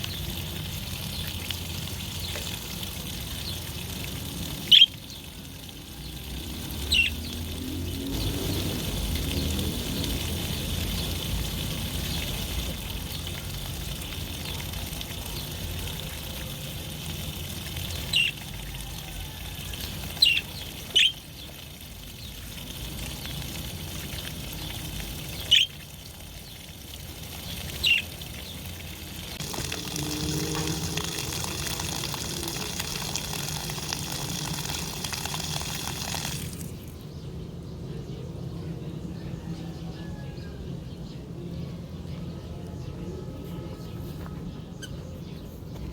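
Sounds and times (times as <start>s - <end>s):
water rushing: 0.0s - 37.0s
budgerigars chirping: 4.7s - 5.0s, 6.9s - 7.2s, 20.2s - 21.2s, 25.4s - 25.7s.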